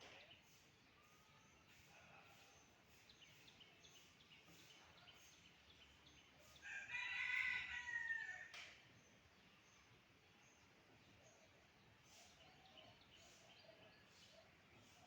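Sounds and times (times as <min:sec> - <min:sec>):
small birds chirping: 0:00.0 - 0:06.6, 0:08.9 - 0:15.0
rooster crowing: 0:06.6 - 0:08.5.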